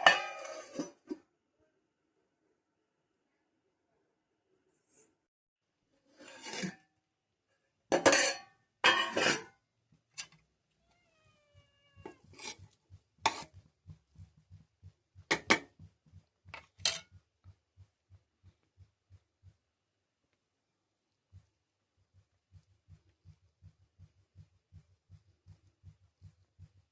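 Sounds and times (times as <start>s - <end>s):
utensils clanking against pot: 0.0s - 1.2s, 8.0s - 9.5s, 16.6s - 17.1s.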